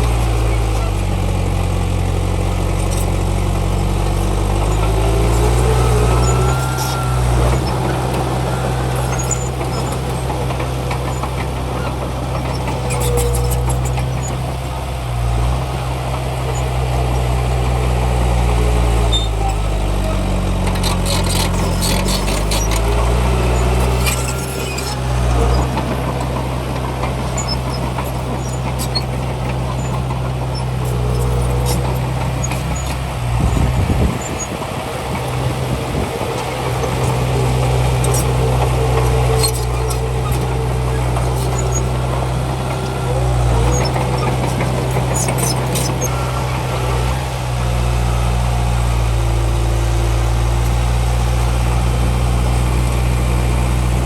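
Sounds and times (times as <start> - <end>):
heavy diesel engine under load: 0.0 - 54.0.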